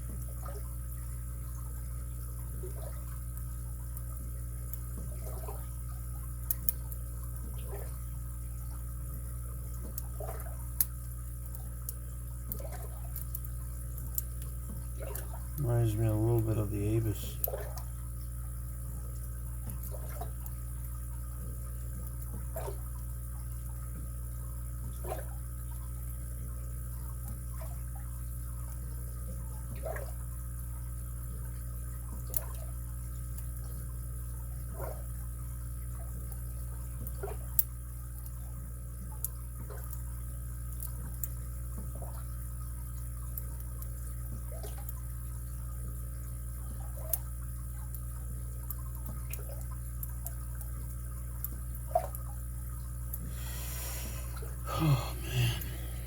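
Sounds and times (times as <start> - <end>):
steady low hum: 0.0 - 24.8, 53.0 - 56.0.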